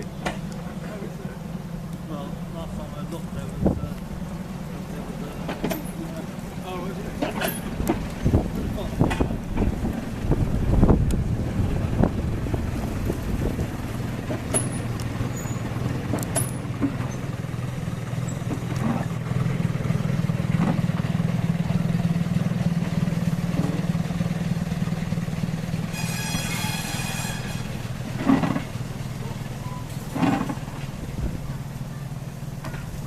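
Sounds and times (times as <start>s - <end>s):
engine droning: 0.0s - 33.0s
high-pitched ringing tone: 25.9s - 27.7s.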